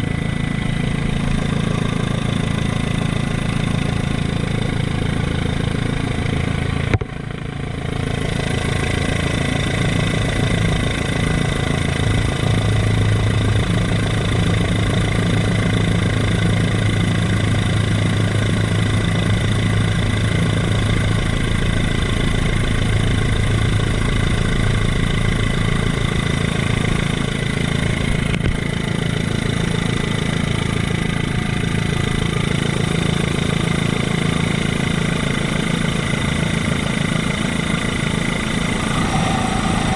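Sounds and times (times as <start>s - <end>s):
helicopter engine and rotor: 0.0s - 28.0s, 28.6s - 39.9s.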